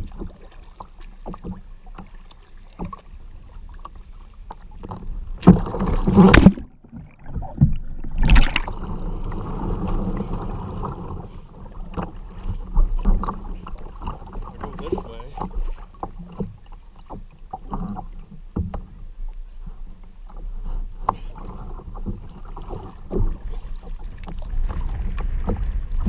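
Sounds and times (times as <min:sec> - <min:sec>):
water sloshing: 0:00.0 - 0:26.0
water splashing around kayak: 0:00.0 - 0:26.0.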